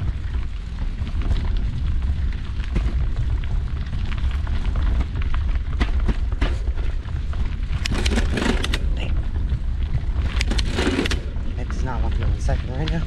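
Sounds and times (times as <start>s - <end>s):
bike rattling over bumps: 0.0s - 13.0s
tyres crunching on dirt: 0.0s - 13.0s
wind buffeting microphone: 0.0s - 13.0s.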